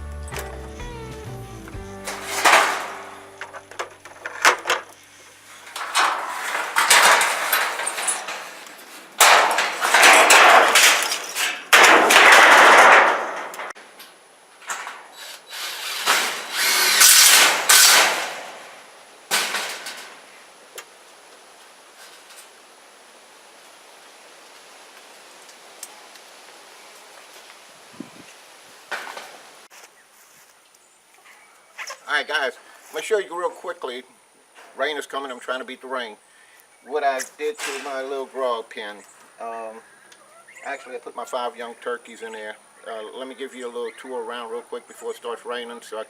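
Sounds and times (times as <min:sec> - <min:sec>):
power tool running: 0:15.2 - 0:18.0.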